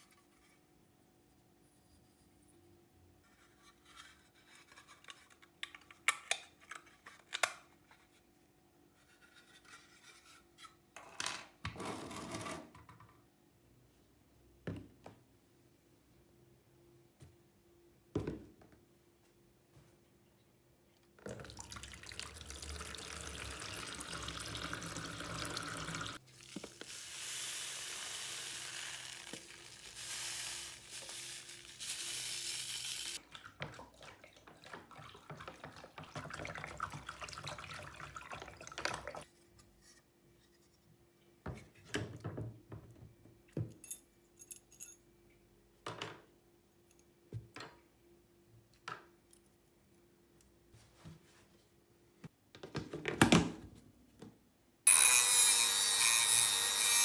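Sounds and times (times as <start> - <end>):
water running from a tap: 21.5 - 33.2.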